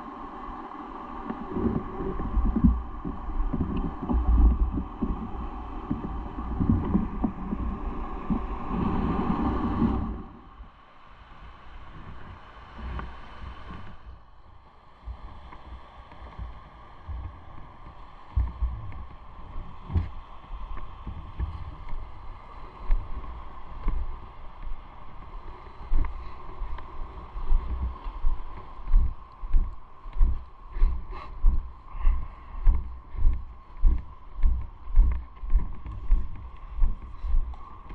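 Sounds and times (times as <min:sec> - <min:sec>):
wind buffeting microphone: 0:01.1 - 0:10.7, 0:15.1 - 0:37.9.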